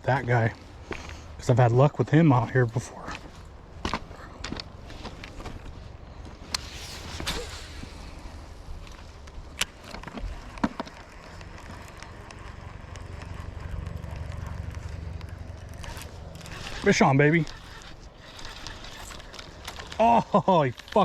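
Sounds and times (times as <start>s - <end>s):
fishing gear clicking and knocking: 8.8s - 21.0s.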